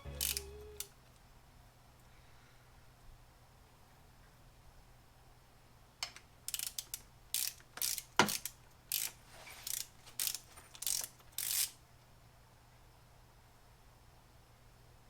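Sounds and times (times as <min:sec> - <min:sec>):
ratchet wrench clicking: 0:00.0 - 0:00.9, 0:06.0 - 0:11.8.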